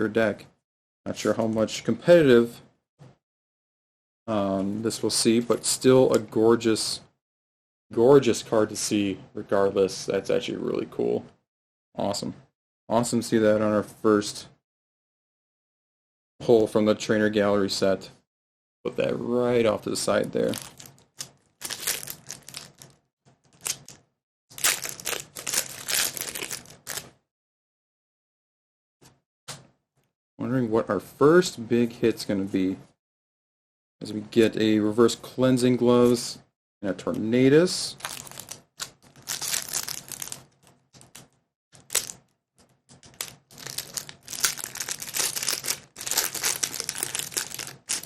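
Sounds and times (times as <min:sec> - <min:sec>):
foil wrapper crinkling and tearing: 0:20.4 - 0:24.0, 0:24.6 - 0:27.0, 0:38.0 - 0:41.2, 0:41.8 - 0:42.2, 0:43.0 - 0:48.0.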